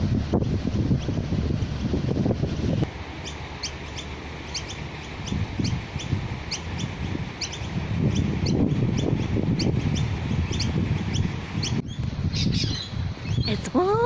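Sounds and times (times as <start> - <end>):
wind buffeting microphone: 0.0 - 14.0
birds chirping: 3.1 - 14.0.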